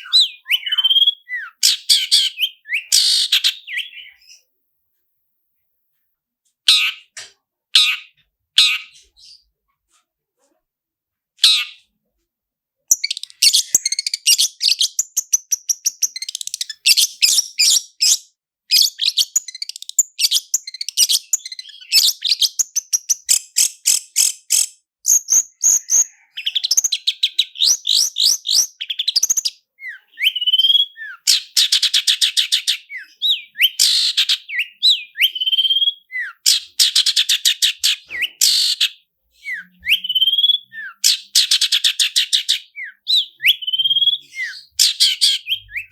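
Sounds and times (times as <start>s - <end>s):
shrike singing rolling song: 0.0s - 2.9s
whistled slurs: 0.0s - 3.0s, 29.8s - 31.2s, 32.9s - 36.4s, 38.1s - 38.7s, 39.3s - 41.1s, 42.8s - 45.9s.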